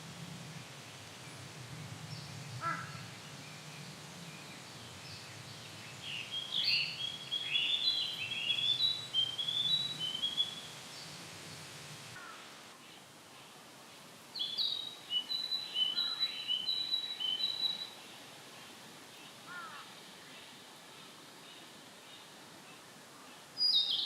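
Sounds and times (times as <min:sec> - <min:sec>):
crow cawing: 0:02.6 - 0:03.0, 0:12.2 - 0:12.5, 0:19.5 - 0:19.9
bird singing whistled notes: 0:05.8 - 0:10.8, 0:14.4 - 0:18.0, 0:23.6 - 0:24.0.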